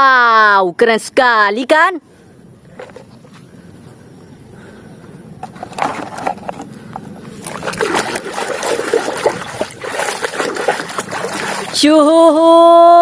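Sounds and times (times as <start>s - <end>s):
water splashing and sloshing: 5.4s - 12.1s.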